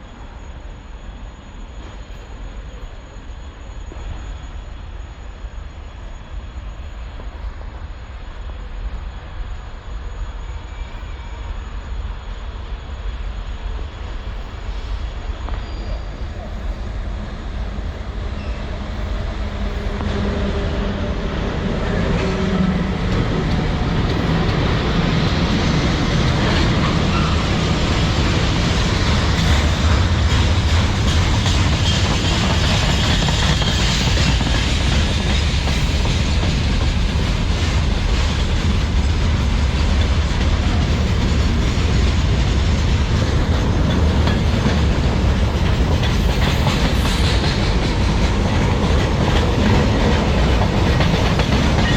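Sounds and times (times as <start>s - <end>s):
freight train wheels clattering: 15.4s - 51.9s.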